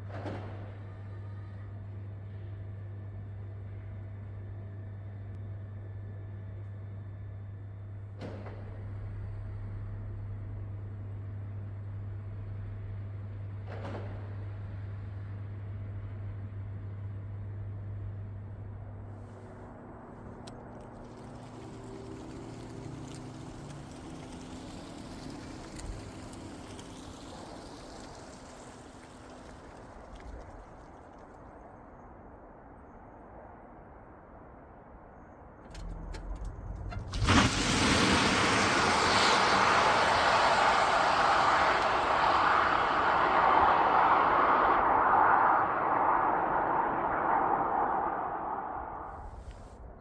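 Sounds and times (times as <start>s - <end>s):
tyre and road noise: 19.3s - 32.5s, 35.5s - 49.8s.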